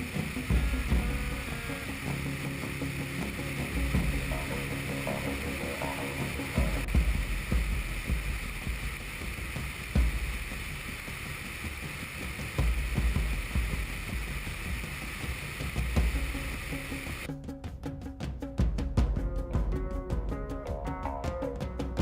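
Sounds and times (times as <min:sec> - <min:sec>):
airflow hiss: 0:00.0 - 0:17.3.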